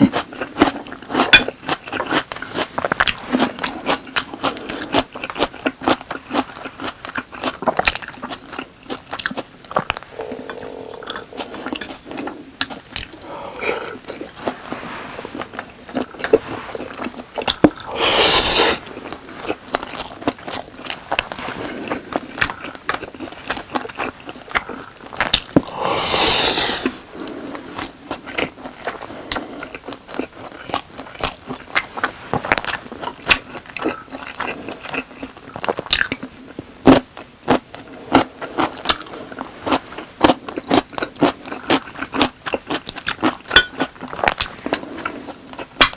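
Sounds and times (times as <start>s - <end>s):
chewing: 0.0s - 45.9s
wet mouth clicks: 17.8s - 18.8s, 25.6s - 27.1s.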